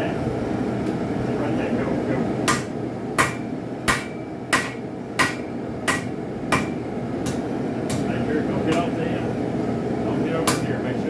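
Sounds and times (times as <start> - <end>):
hammer striking metal on anvil: 2.5 - 8.1, 10.4 - 10.7.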